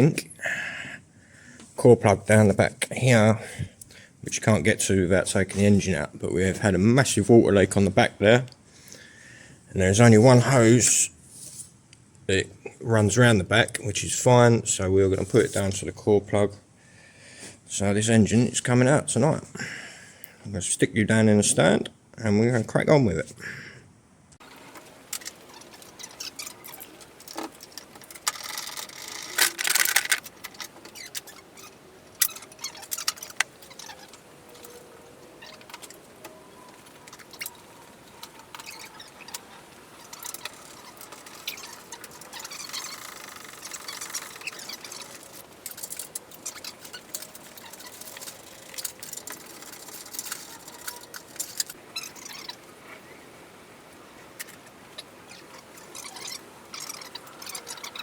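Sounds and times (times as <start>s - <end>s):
hand tools and metal parts clinking: 24.4s - 52.6s
faint squeaks: 24.4s - 53.4s, 54.0s - 58.0s.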